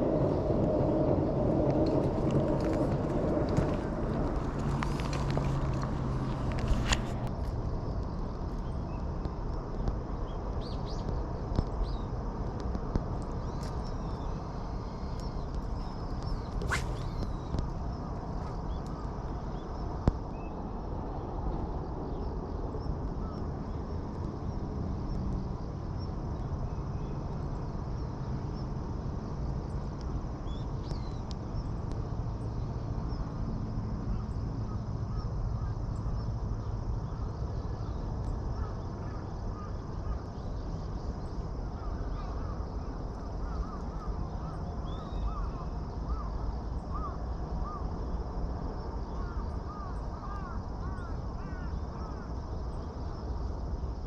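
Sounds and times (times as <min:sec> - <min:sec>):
low outdoor background noise: 0:00.0 - 0:54.0
birds calling: 0:13.4 - 0:19.5.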